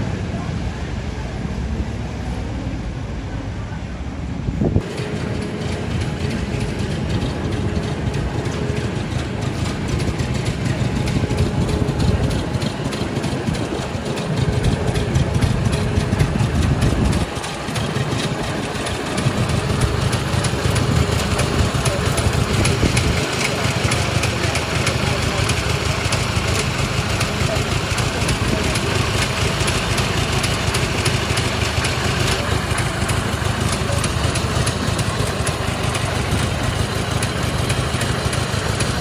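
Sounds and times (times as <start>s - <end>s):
car engines idling in traffic: 0.0s - 39.0s.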